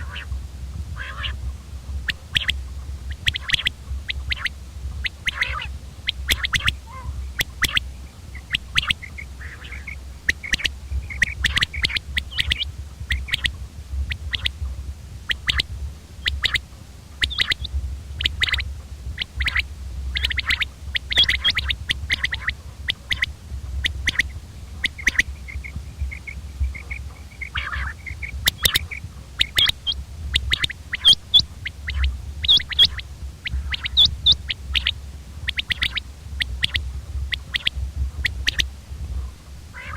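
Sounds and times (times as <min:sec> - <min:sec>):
quail calling: 0:00.0 - 0:39.9
steady low hum: 0:00.0 - 0:39.9.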